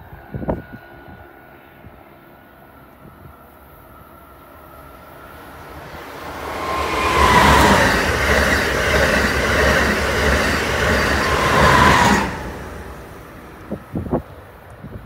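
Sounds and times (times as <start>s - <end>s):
high-speed train passing: 0.0s - 15.0s
thin whine of train: 0.0s - 15.0s.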